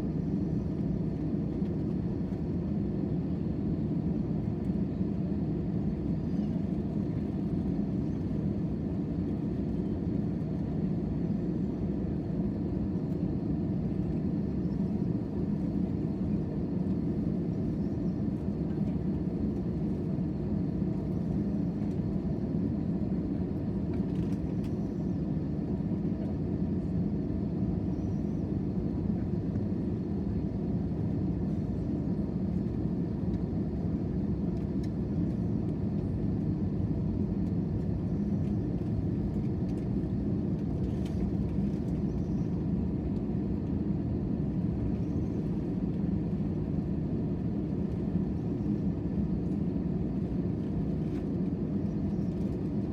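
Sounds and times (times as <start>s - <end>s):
jet airliner cabin drone: 0.0s - 52.9s.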